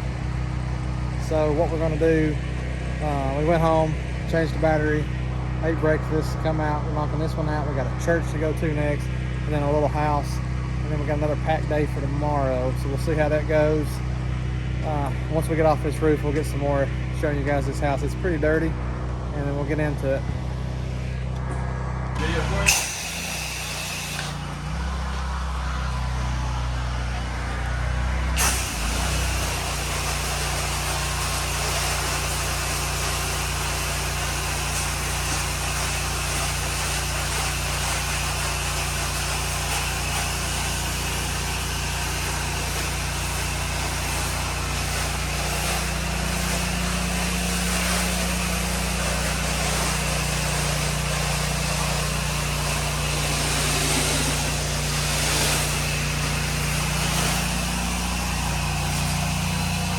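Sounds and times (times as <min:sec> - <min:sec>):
pressure washer engine running: 0:00.0 - 0:59.9
water spray hissing: 0:22.2 - 0:59.9.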